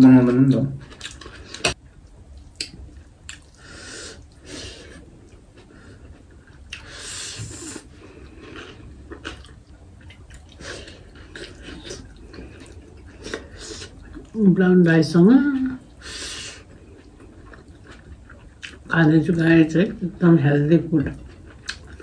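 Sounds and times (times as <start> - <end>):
chewing and mouth smacks: 0.8 - 3.6, 5.2 - 6.9, 7.8 - 14.4, 16.6 - 18.9, 21.1 - 22.0.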